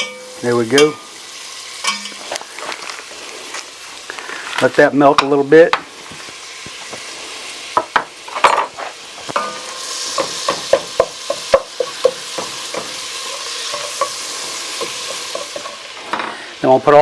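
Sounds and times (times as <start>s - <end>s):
butter sizzling in a pot: 0.0s - 17.0s
utensil scraping a pot: 8.3s - 16.2s.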